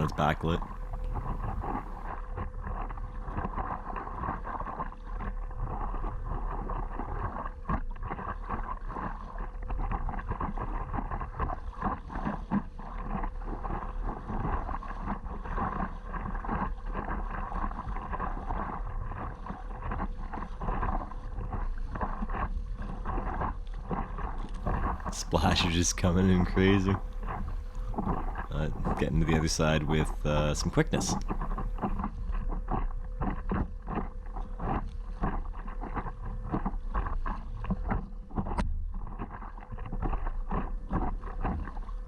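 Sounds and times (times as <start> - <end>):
paddle strokes: 0.0 - 5.0, 5.6 - 42.0
low wind rumble on microphone: 0.0 - 42.0
water sloshing: 24.6 - 32.1.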